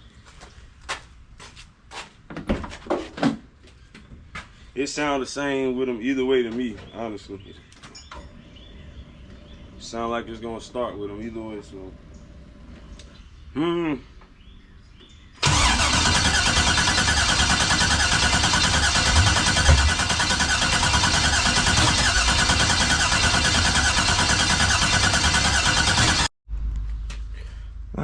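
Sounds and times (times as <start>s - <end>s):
starter cranking engine: 15.4s - 26.3s.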